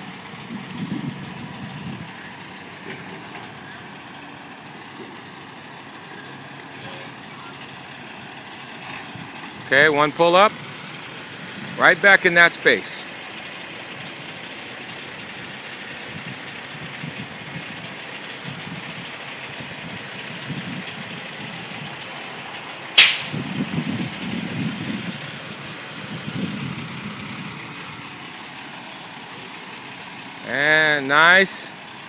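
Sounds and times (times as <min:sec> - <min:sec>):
truck diesel engine running: 0:00.0 - 0:32.0
air brakes hiss: 0:23.0 - 0:23.4.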